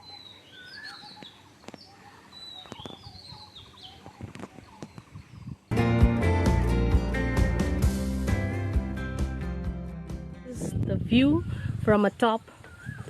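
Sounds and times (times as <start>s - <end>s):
wild birds whistling calls: 0.0s - 5.6s, 12.4s - 13.0s
loud music: 5.7s - 10.6s.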